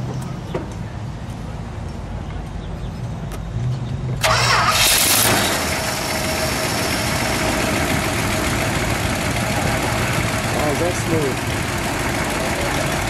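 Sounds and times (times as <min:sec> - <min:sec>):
car engine starting and idling: 0:04.2 - 0:13.0.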